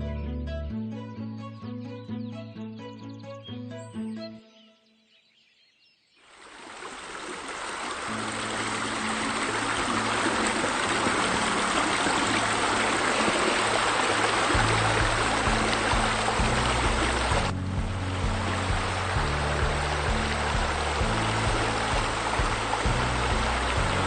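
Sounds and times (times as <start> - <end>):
soft music: 0.0 - 5.1, 8.0 - 24.0
waterfall rushing: 6.3 - 24.0.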